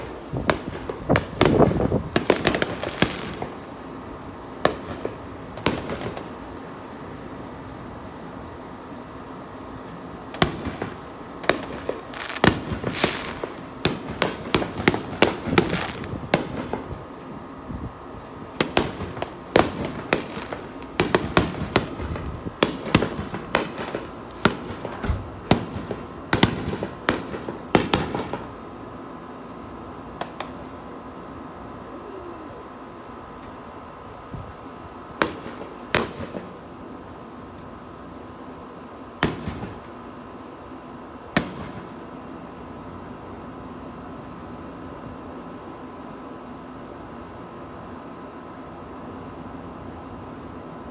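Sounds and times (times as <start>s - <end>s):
fireworks bangs and crackles: 0.0s - 31.2s, 33.5s - 43.3s.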